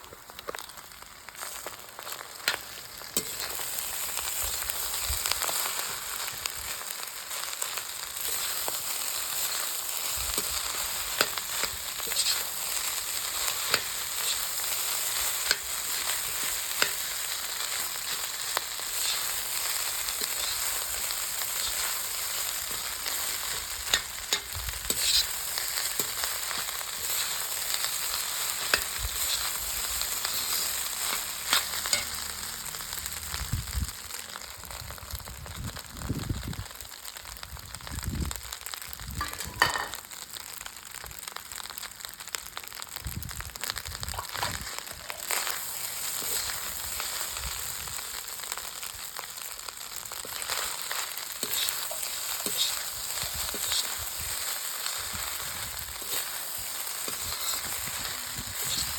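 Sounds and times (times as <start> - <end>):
food sizzling in a pan: 0.0 - 58.9
spatula scraping a pan: 1.4 - 32.5, 44.2 - 48.2, 50.1 - 58.9.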